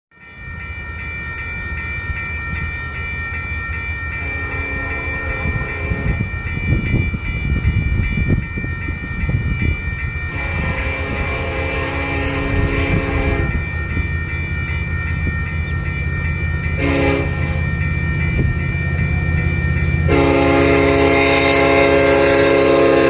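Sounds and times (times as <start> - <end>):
train engines and wheels rumbling: 0.2 - 23.0
train air horn: 4.2 - 6.2, 10.3 - 13.7, 16.8 - 17.6, 20.0 - 23.0.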